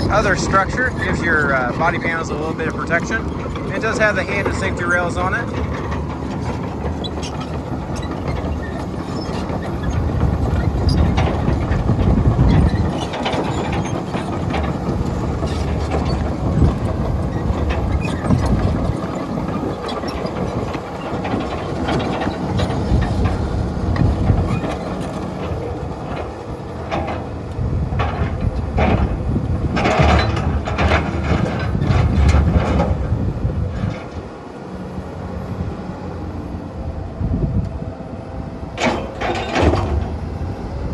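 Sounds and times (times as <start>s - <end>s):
excavator diesel engine under load: 0.0s - 40.9s
bucket clanking on broken concrete: 38.8s - 40.2s.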